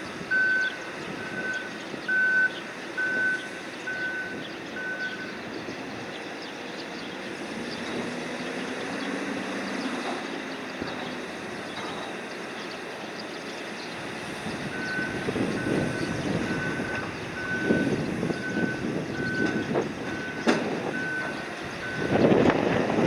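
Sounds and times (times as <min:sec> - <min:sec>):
high warning beeps: 0:00.1 - 0:05.5, 0:14.6 - 0:22.3.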